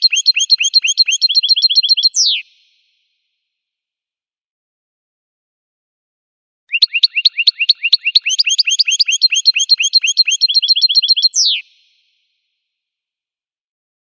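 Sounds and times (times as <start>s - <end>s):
goldfinch song: 0.0s - 2.7s, 6.7s - 12.1s.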